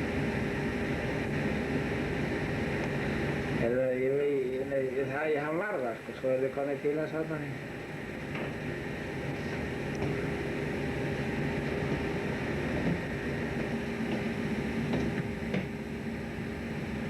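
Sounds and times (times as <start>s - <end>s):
boat engine humming: 7.4s - 17.0s.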